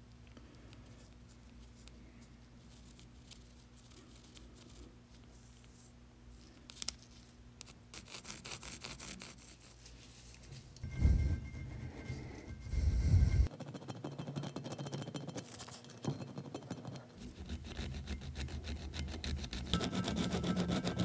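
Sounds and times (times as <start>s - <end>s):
steady low hum: 8.6s - 13.5s
pencil scratching on metal: 10.8s - 15.8s, 16.4s - 21.0s.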